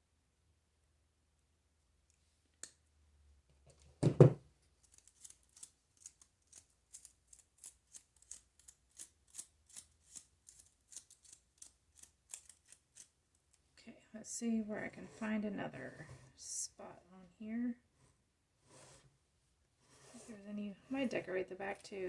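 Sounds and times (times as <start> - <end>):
scissors snipping: 4.9 - 13.1.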